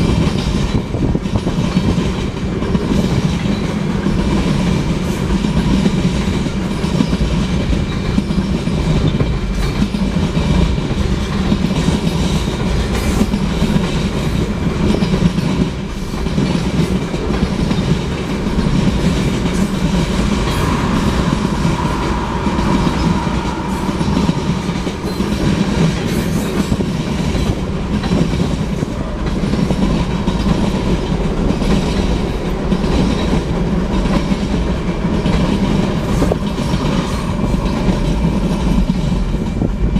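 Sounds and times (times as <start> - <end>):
freight train wheels clacking: 0.0 - 39.9
faint train squeal: 19.6 - 27.6.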